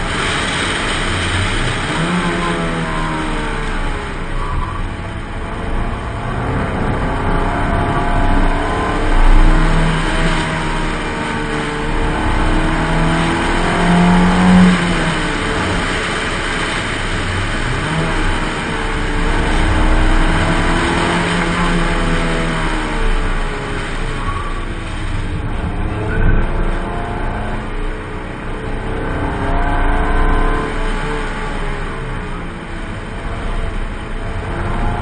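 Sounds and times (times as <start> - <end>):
car engine revving: 0.0 - 35.0
road and wind noise: 0.0 - 35.0.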